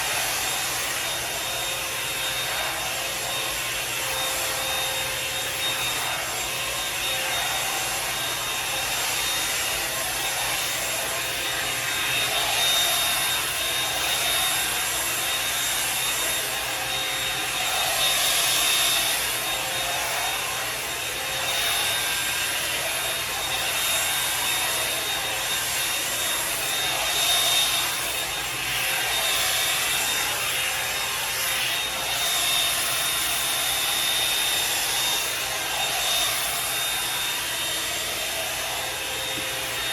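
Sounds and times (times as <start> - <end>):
hair dryer brush fan whine: 0.0 - 39.9.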